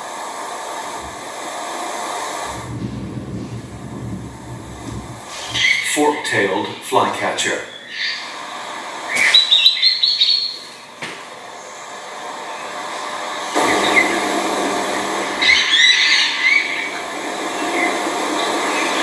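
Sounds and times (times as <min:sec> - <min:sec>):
steady rushing background noise: 0:00.0 - 0:06.9
bird chattering chirps: 0:09.1 - 0:10.8.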